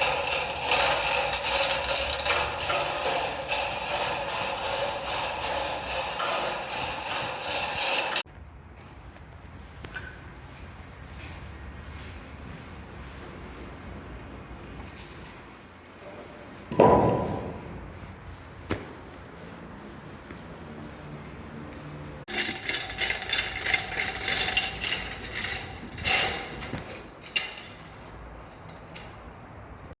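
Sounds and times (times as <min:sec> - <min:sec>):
saw cutting: 0:00.0 - 0:08.2.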